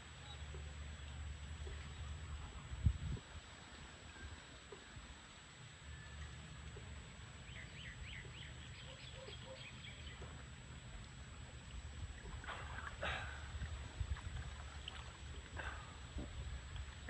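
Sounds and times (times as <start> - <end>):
bird chirping: 7.5 - 10.3.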